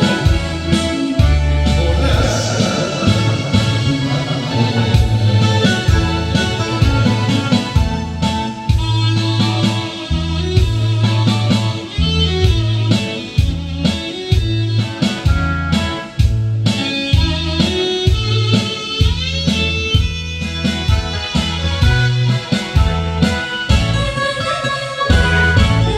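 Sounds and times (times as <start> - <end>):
guitar melody: 0.0 - 22.6
bass line: 0.0 - 24.4, 25.1 - 25.9
drum beat: 1.7 - 9.1.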